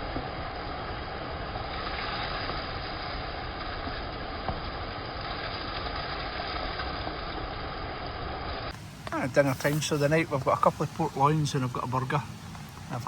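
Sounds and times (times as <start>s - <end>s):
heavy rain: 0.0s - 13.0s
waterfall rushing: 8.7s - 13.0s.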